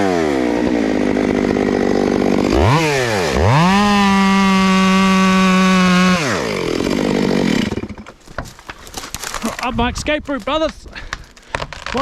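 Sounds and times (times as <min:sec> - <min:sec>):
chainsaw revving and idling: 0:00.0 - 0:08.1.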